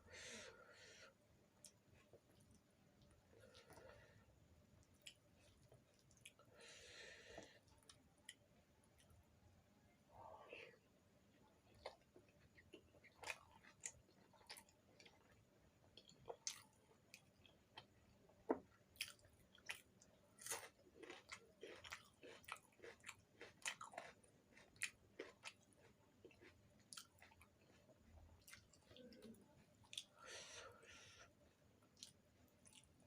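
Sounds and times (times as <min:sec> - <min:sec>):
person chewing food: 0:01.6 - 0:09.2, 0:11.3 - 0:33.0.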